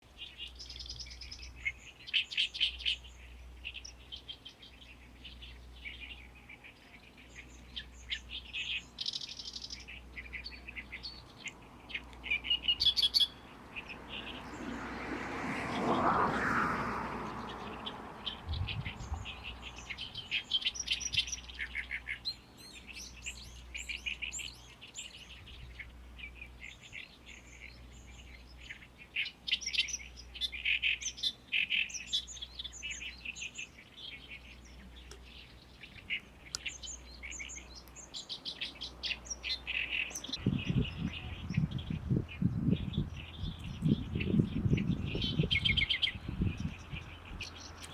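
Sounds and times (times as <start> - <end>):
bird chattering song: 0.1 - 14.8, 17.2 - 47.9.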